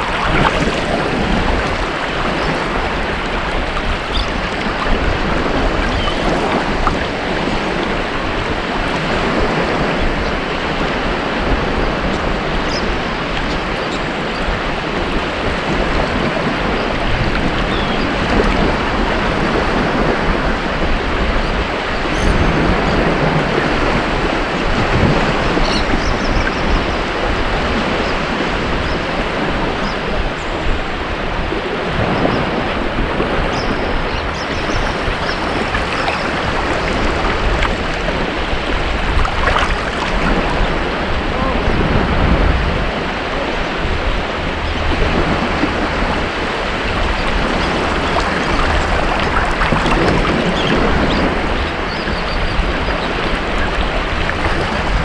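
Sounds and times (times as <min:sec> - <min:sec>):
ocean waves breaking: 0:00.0 - 0:10.0, 0:31.8 - 0:55.0.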